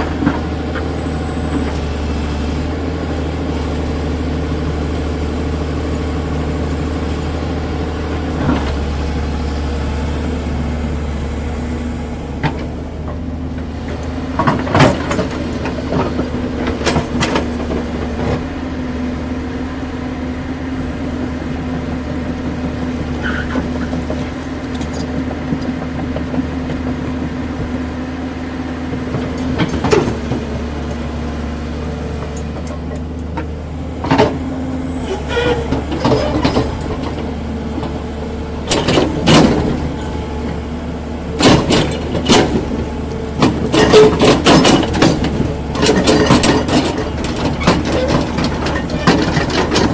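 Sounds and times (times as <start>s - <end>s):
excavator diesel engine running: 0.0s - 49.9s
sharp metal knocks and clanks: 43.4s - 49.9s.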